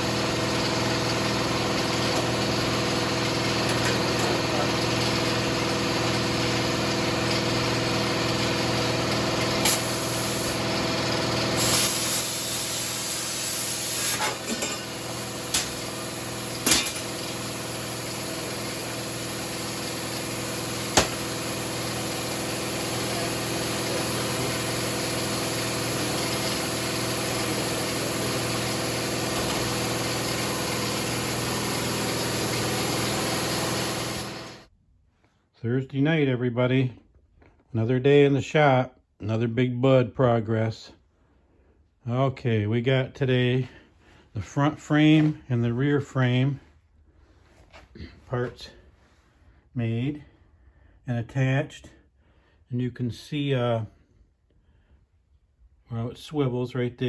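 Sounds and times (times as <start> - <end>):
plasma cutter hissing: 9.6 - 10.7, 11.5 - 34.6.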